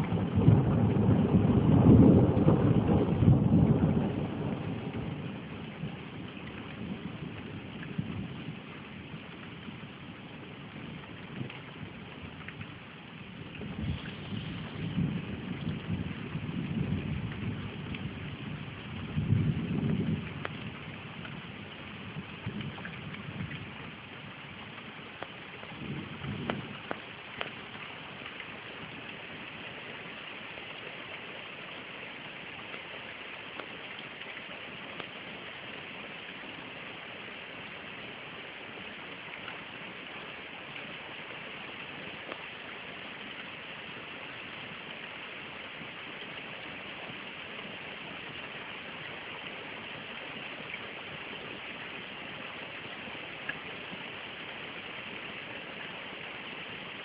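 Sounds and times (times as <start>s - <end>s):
low thunder rumbles: 0.0s - 29.7s
steady rain hiss: 0.0s - 57.0s.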